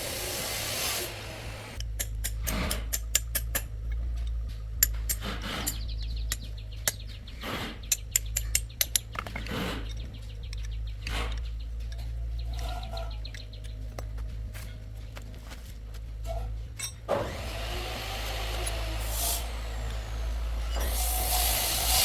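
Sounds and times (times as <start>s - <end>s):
steady low hum: 0.0s - 22.0s
tools clicking on metal: 1.8s - 7.2s, 7.9s - 14.2s.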